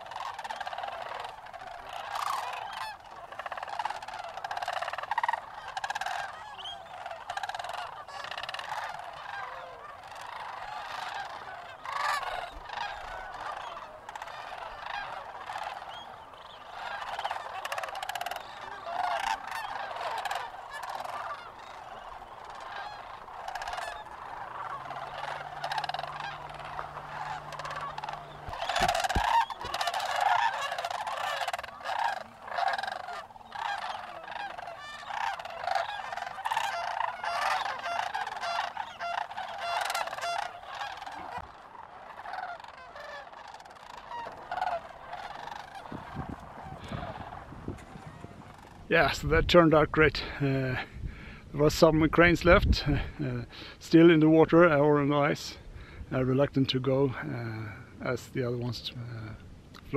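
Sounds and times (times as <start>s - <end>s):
cranes calling in chorus: 0.0s - 48.9s
faint low hum: 18.0s - 42.5s.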